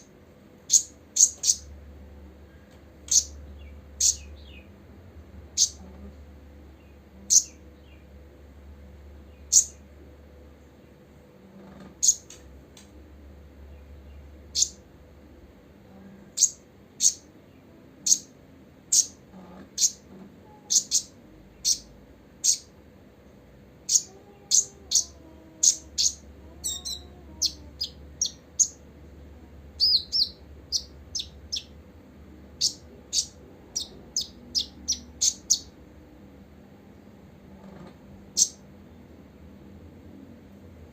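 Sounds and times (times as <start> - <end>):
faint steady hum: 0.0 - 40.9
bird high chirps: 0.7 - 1.7, 3.0 - 4.7, 5.6 - 5.9, 6.8 - 8.1, 9.3 - 9.8, 12.0 - 12.4, 13.7 - 14.8, 16.4 - 17.3, 18.0 - 18.3, 18.9 - 19.2, 19.8 - 22.7, 23.8 - 28.8, 29.8 - 31.8, 32.6 - 35.8, 38.3 - 38.6
bird twittering notes: 14.5 - 14.8, 29.8 - 31.8, 32.6 - 35.7.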